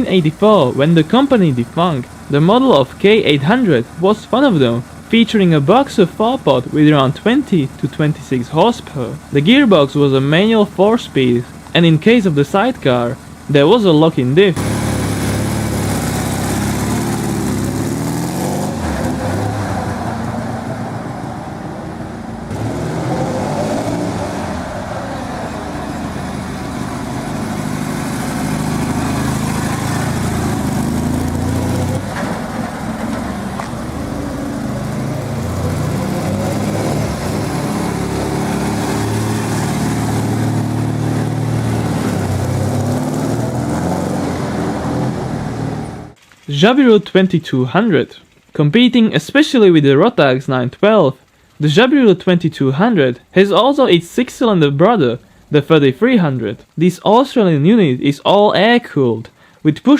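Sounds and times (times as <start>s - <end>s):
motorcycle engine revving: 12.6s - 46.2s.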